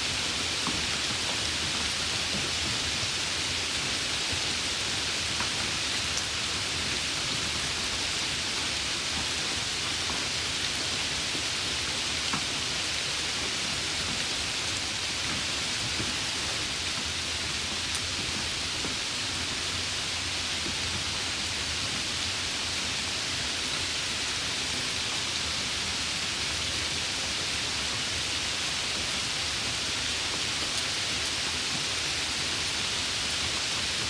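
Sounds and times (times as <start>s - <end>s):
steady rain hiss: 0.0s - 34.0s
faint raindrop ticks: 15.3s - 19.4s.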